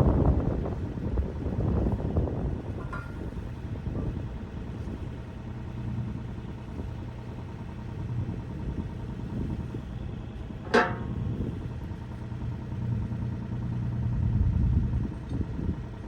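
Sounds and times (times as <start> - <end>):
diesel engine running: 0.0 - 16.0
sharp metallic clank: 10.7 - 11.5.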